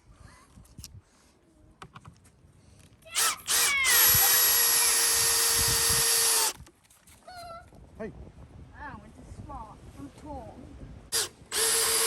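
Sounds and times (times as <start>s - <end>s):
power tool running: 3.2s - 6.6s, 11.1s - 12.0s.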